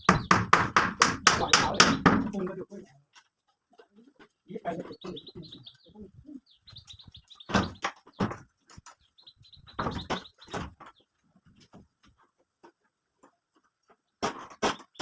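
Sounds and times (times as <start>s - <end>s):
loud knocks: 0.0s - 2.5s, 7.4s - 8.5s, 9.7s - 10.9s
bird chirping: 0.0s - 11.8s, 13.9s - 15.0s.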